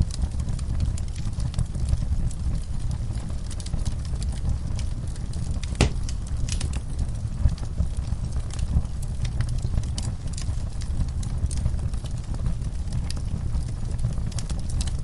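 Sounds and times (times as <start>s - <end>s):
wood fire crackling: 0.0s - 15.0s
sharp pops of fire: 5.3s - 7.6s.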